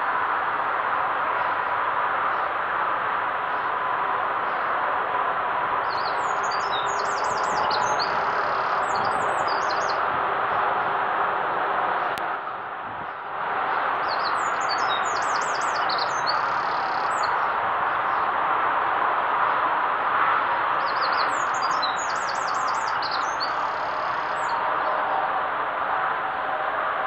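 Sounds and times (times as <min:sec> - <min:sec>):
steady rushing noise: 0:00.0 - 0:27.0
songbird singing: 0:05.8 - 0:10.1, 0:14.0 - 0:18.3, 0:20.8 - 0:25.2.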